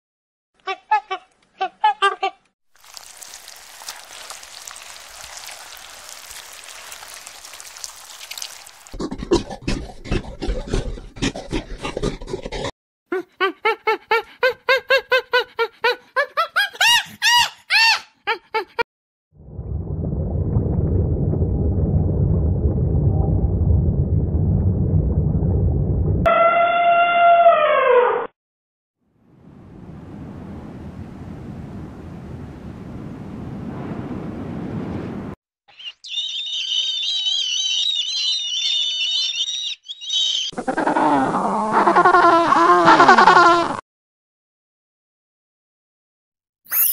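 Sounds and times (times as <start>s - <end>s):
wind and surf rumble: 19.4s - 26.3s, 29.3s - 35.4s.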